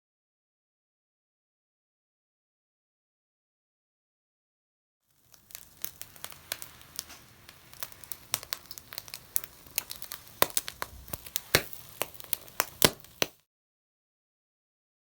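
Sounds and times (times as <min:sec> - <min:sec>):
wood bonfire crackling: 0:05.1 - 0:13.4.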